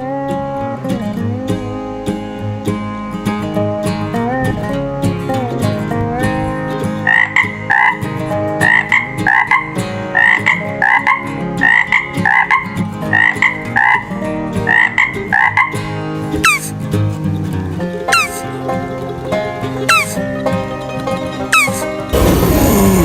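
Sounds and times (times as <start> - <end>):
background music: 0.0 - 23.0
frog-like croaking call: 6.9 - 16.8, 18.1 - 18.5, 19.9 - 20.2, 21.5 - 23.0.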